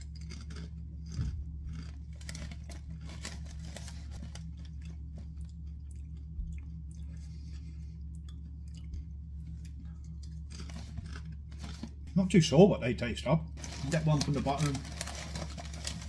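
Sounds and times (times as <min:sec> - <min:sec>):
person crunching crisps: 0:00.0 - 0:12.1, 0:13.6 - 0:16.0
low hum: 0:00.0 - 0:16.0.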